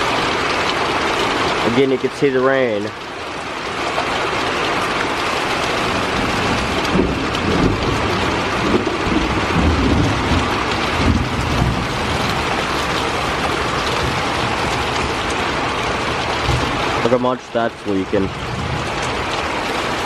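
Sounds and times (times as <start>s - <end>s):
heavy rain pouring: 0.0s - 20.0s
low thunder rumble: 5.8s - 17.0s, 18.3s - 19.4s.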